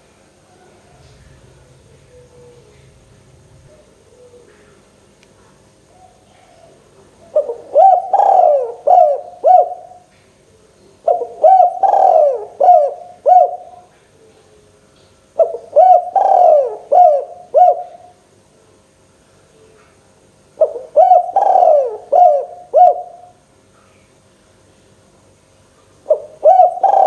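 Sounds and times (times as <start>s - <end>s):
dove cooing: 0.5s - 5.0s, 5.8s - 10.1s, 11.0s - 14.7s, 15.4s - 18.2s, 20.6s - 23.4s, 26.0s - 27.0s.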